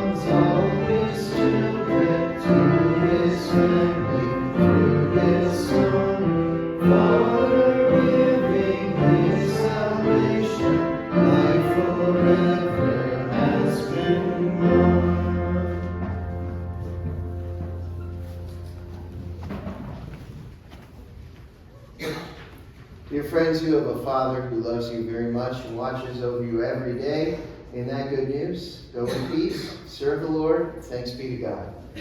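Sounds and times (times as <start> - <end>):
group singing a hymn: 0.0 - 16.7
instrumental accompaniment: 0.0 - 20.0.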